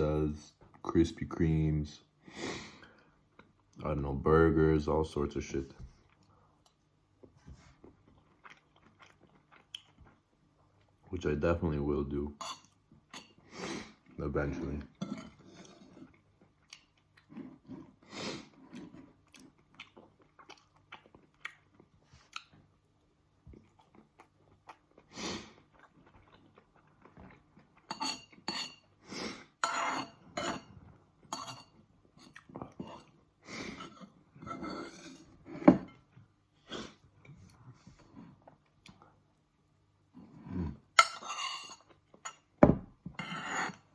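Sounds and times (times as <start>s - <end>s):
chewing: 7.7s - 11.0s, 15.6s - 22.8s, 23.4s - 28.4s
cutlery clinking on a dish: 27.9s - 28.8s, 29.6s - 30.7s, 31.3s - 31.8s, 41.0s - 42.5s.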